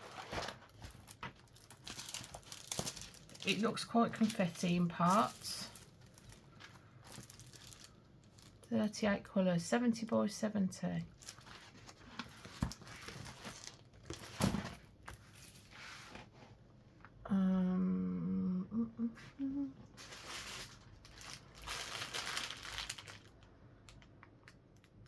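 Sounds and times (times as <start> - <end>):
plastic packaging crinkling: 0.0 - 9.0, 11.1 - 15.6, 20.0 - 24.9
woman humming: 17.2 - 19.9.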